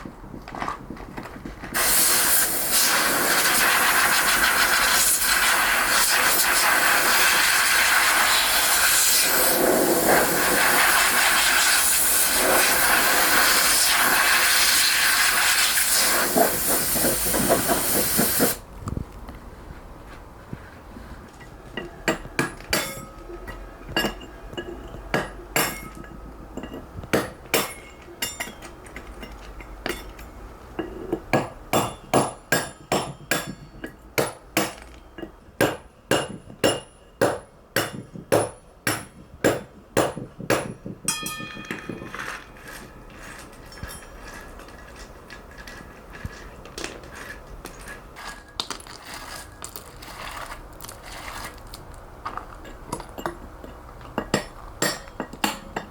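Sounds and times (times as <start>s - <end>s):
hammer striking chisel on stone: 21.8s - 30.2s, 30.8s - 44.2s, 54.1s - 55.9s.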